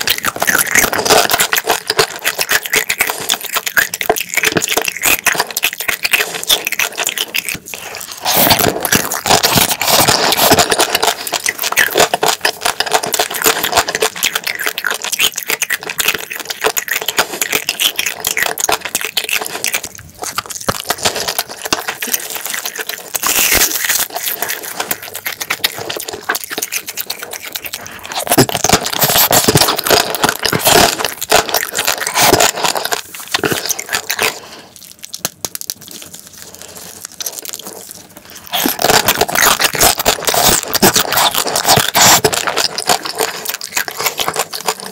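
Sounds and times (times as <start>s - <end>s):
wet chewing and mouth sounds: 0.0s - 44.9s.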